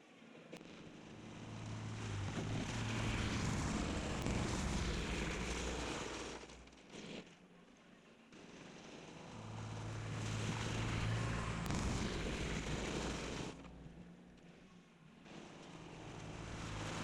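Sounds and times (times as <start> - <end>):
tractor diesel engine passing: 1.4 - 6.6, 9.4 - 13.9, 15.9 - 17.0.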